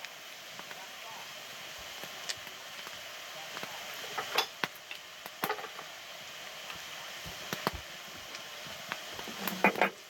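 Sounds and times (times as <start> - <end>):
meat sizzling in a pan: 0.0 - 10.0
fat popping: 9.2 - 10.0.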